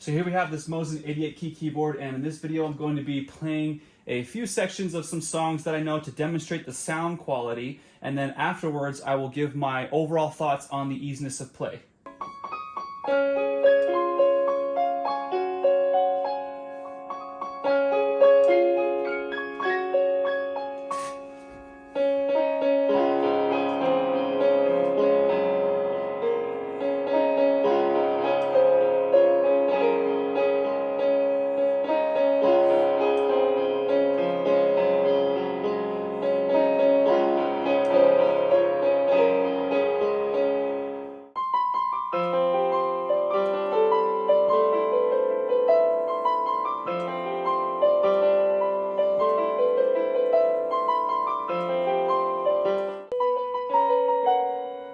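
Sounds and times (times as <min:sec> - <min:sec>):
digital piano playing: 0:12.1 - 0:54.9.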